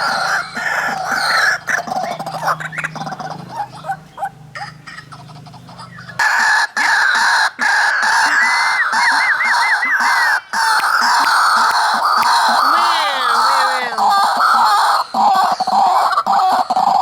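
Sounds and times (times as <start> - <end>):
waterhens calling: 0.0 - 17.0.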